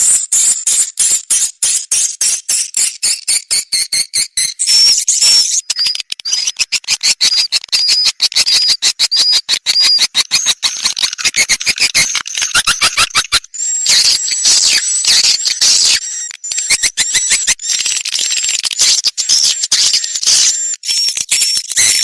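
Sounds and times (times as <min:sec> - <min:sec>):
swiftlet calls chattering: 0:04.8 - 0:17.8.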